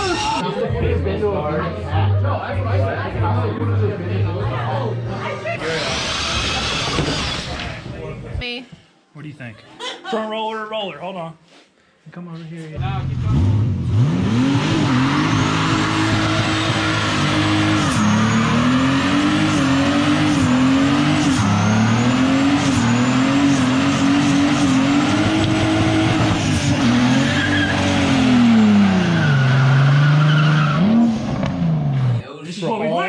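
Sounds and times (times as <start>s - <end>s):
car engine revving: 5.2s - 8.0s, 12.8s - 32.2s
tyres spinning and hissing: 5.6s - 8.0s.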